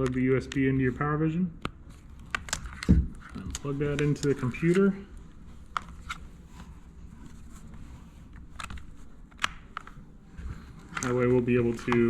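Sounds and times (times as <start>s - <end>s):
low steady hum: 0.0s - 12.0s
cable plugging clicks and taps: 8.5s - 10.0s, 10.7s - 12.0s.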